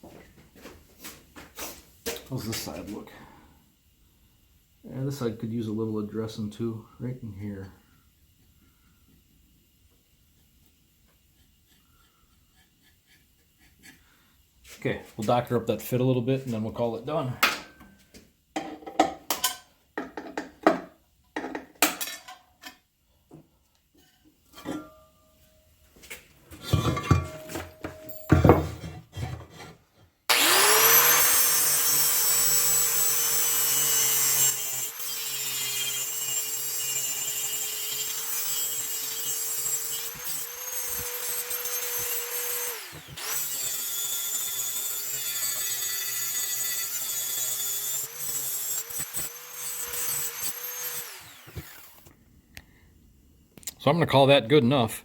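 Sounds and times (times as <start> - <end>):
power grinder grinding: 30.3 - 52.1.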